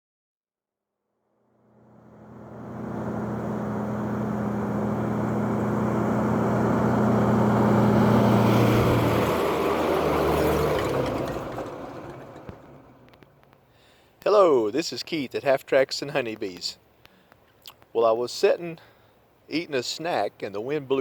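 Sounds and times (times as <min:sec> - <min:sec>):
vehicle engine passing by: 0:01.5 - 0:13.2.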